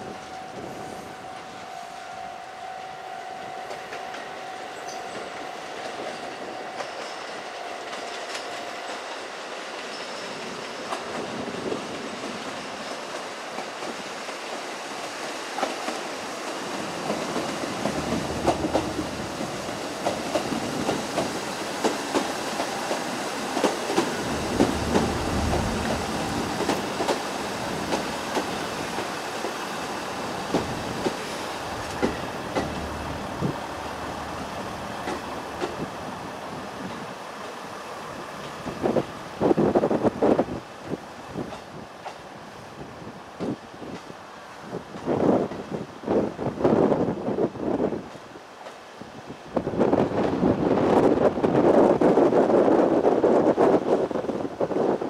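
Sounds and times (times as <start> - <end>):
wheels clicking over rail joints: 4.9 - 35.9
low engine rumble: 24.1 - 28.2, 30.4 - 36.0.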